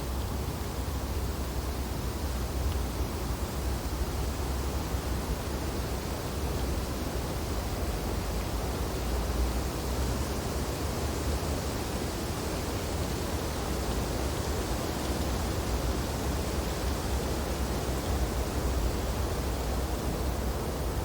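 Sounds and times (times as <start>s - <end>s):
wind through tree branches: 0.0s - 21.0s.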